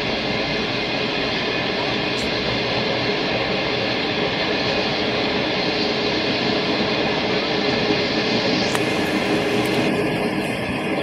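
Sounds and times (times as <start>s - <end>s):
passenger train running: 0.0s - 11.0s.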